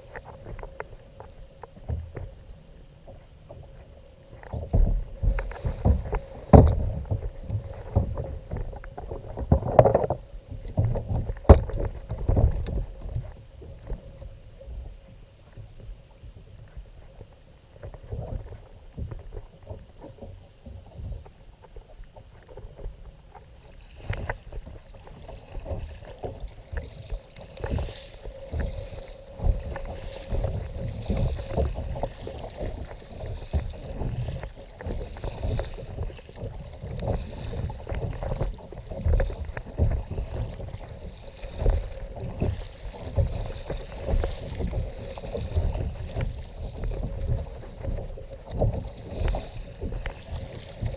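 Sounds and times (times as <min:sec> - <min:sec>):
water rumbling against kayak hull: 0:00.0 - 0:50.9
sharp knocks on hull: 0:04.8 - 0:07.3.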